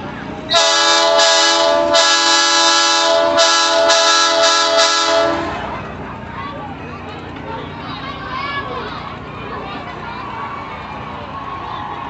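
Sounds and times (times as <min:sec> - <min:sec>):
train horn blasts: 0:00.5 - 0:05.7.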